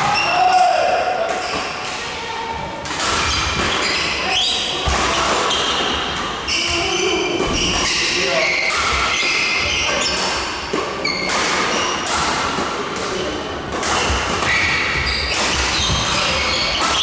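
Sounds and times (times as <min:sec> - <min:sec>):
racket hitting shuttlecock: 0:02.8 - 0:04.1, 0:08.7 - 0:17.0
shoes squeaking on court floor: 0:14.0 - 0:17.0.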